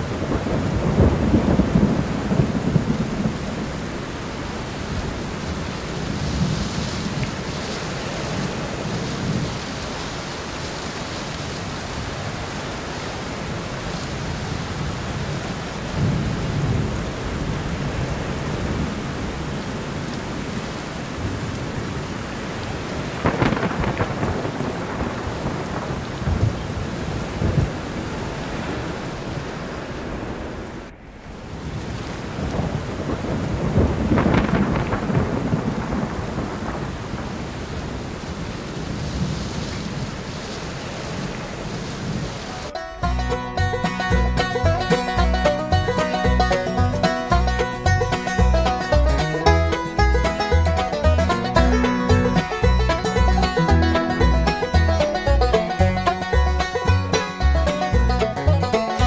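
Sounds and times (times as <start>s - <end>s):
thunder rumbles: 0.0s - 12.6s, 13.4s - 42.5s, 43.1s - 59.0s
heavy rain pouring: 0.0s - 59.0s.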